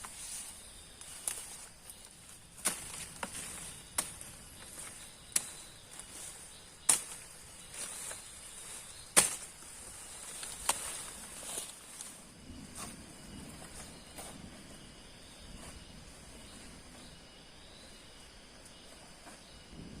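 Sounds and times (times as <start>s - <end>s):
insects chirring: 0.0s - 20.0s
sharp cracks: 9.1s - 9.6s.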